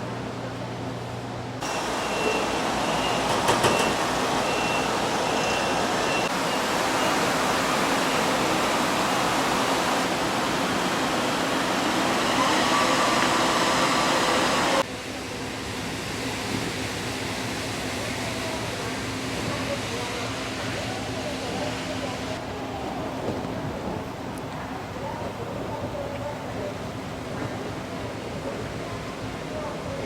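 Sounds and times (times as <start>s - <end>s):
ship engine drone: 0.0s - 30.0s
high electronic beeps: 2.0s - 7.2s
wind and water rushing: 4.0s - 14.8s.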